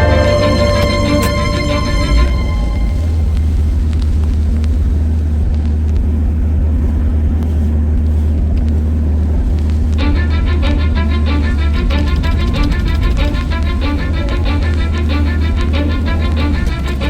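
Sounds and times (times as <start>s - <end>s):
music: 0.0s - 3.6s, 10.0s - 17.0s
diesel engine rumbling: 0.0s - 7.4s, 9.2s - 17.0s.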